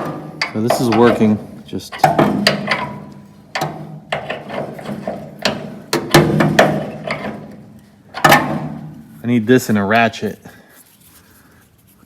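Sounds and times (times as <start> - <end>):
wrench clanking on metal: 0.0 - 9.0.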